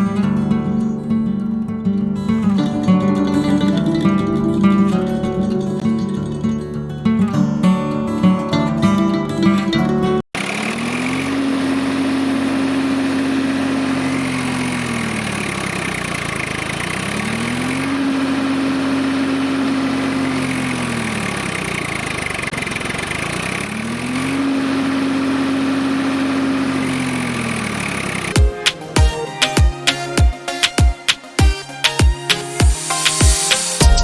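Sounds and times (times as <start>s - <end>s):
small motor humming: 10.4s - 28.6s.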